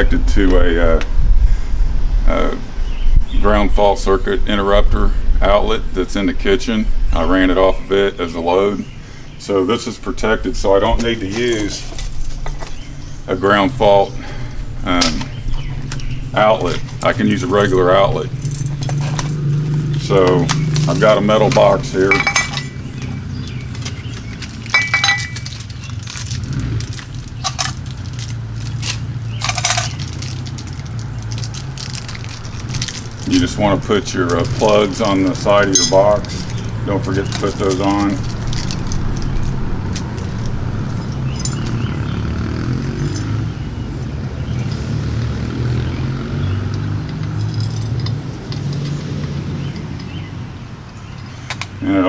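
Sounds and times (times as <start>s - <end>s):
steady low hum: 0.0s - 25.9s
low mechanical drone: 0.0s - 52.0s
metal box clinking: 18.4s - 33.4s, 34.3s - 41.8s.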